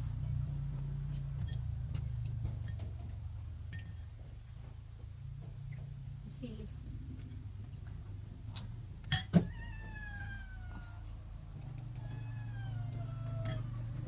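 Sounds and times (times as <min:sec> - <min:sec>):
cat meowing: 0:09.4 - 0:13.9.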